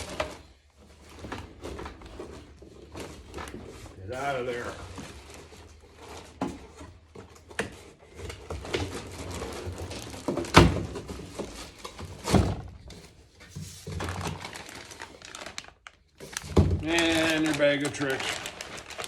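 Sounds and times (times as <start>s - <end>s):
cardboard packaging rustling: 0.0s - 19.0s.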